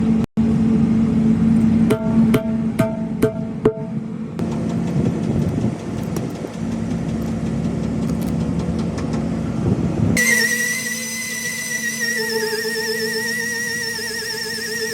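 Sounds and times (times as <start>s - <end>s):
engine humming: 0.4s - 14.9s.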